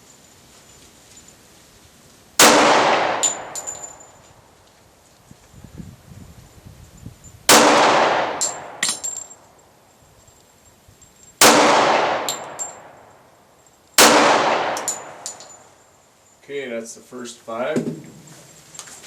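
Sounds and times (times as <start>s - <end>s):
light metallic clinks: 0.0s - 1.8s, 3.1s - 5.5s, 6.5s - 7.5s, 8.3s - 16.6s
pistol shots under a tin roof: 2.4s - 4.0s, 7.5s - 9.2s, 11.4s - 13.0s, 14.0s - 15.7s.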